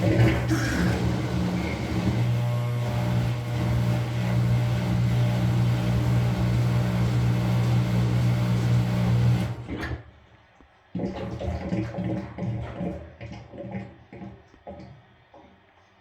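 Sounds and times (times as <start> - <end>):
washing machine motor humming: 0.0 - 10.2.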